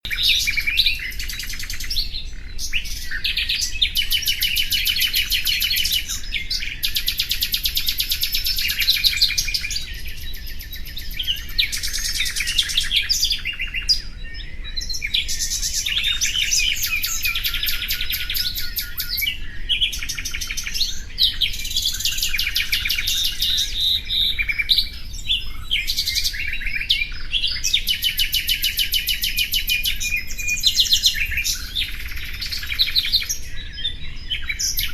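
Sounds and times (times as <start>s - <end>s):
nightingale singing: 0.0s - 34.9s.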